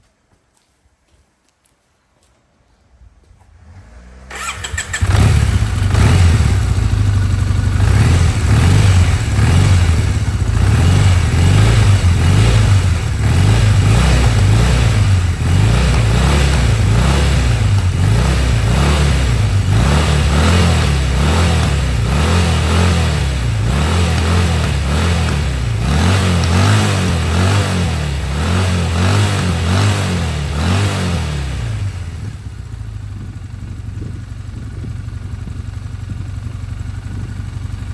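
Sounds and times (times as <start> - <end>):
motorcycle engine running: 3.6 - 37.9.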